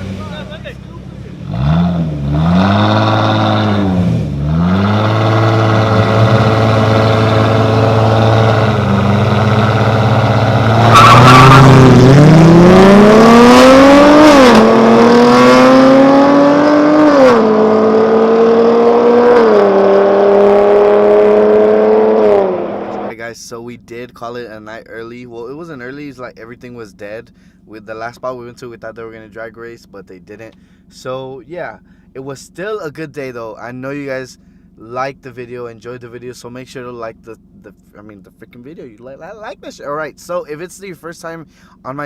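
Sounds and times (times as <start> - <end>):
car engine revving: 0.0 - 23.1
tire squeal: 2.4 - 12.4.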